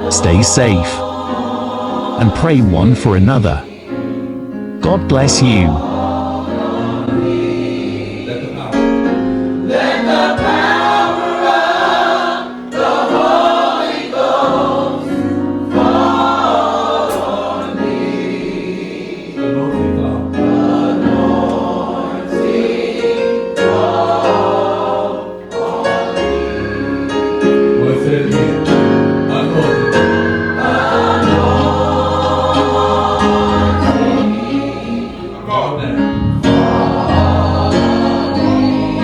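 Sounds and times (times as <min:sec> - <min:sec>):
gospel choir singing: 0:00.0 - 0:39.0
instrumental accompaniment: 0:23.7 - 0:39.0.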